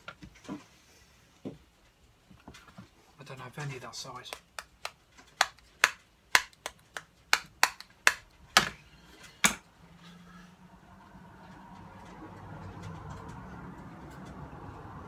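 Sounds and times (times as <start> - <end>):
sharp clicks of small hard objects: 4.3 - 8.7.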